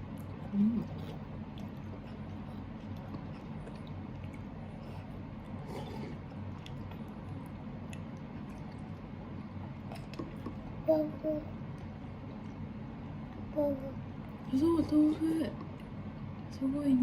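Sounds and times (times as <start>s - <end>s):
toddler chewing: 0.0s - 12.6s
steady low hum: 0.0s - 17.0s.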